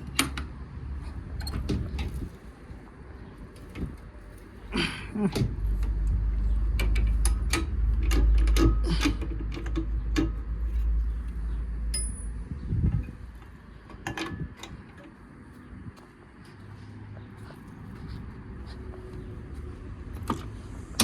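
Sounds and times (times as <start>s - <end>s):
sharp clicks and knocks: 0.0s - 0.6s, 5.3s - 15.2s, 20.1s - 21.0s.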